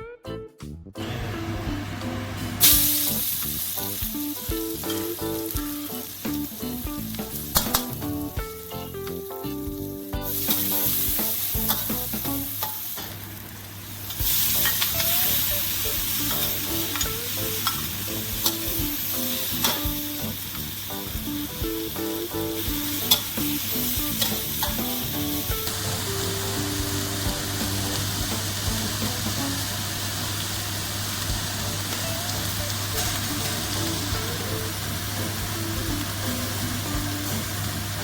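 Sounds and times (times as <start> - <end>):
background music: 0.0 - 13.0, 14.2 - 30.1, 31.2 - 38.0
food sizzling in a hot pan: 2.6 - 38.0.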